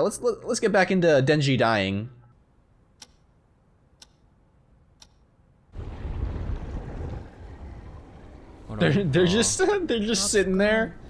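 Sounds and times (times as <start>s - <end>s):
clock ticking: 4.0s - 4.3s
low rumbling noise: 5.6s - 10.0s.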